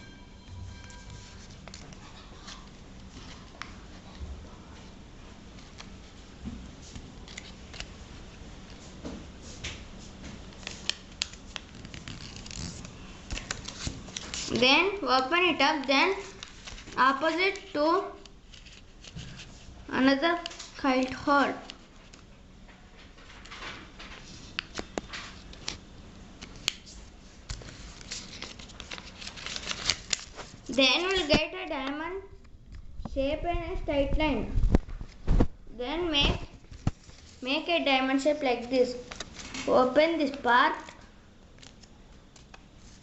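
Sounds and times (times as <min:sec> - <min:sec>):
paper being folded and creased: 0:01.1 - 0:04.2, 0:06.9 - 0:08.0, 0:10.4 - 0:19.7, 0:26.4 - 0:31.9
crisp paper creasing clicks: 0:10.5 - 0:14.7, 0:27.5 - 0:31.4.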